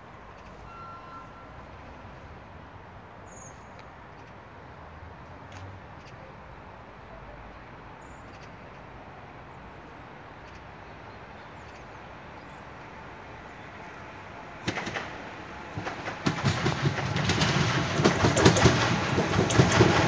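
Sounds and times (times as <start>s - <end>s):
wheels clacking on rail joint: 0.2s - 1.5s, 14.6s - 20.0s
train rolling hiss: 13.0s - 20.0s.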